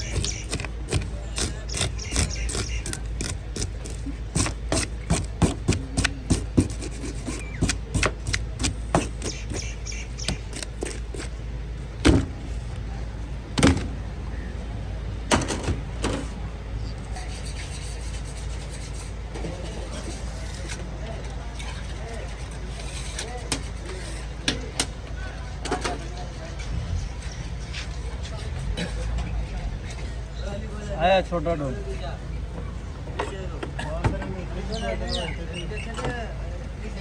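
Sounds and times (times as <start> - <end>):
rubbing and scraping: 0.0 - 11.4, 17.0 - 20.9, 21.7 - 24.4.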